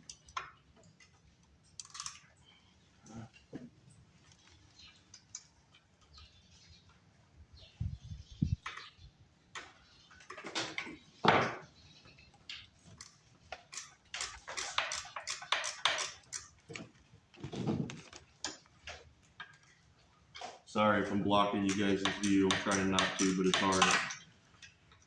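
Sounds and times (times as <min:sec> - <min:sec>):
hand tools clicking and knocking: 0:12.4 - 0:17.0, 0:21.3 - 0:25.0.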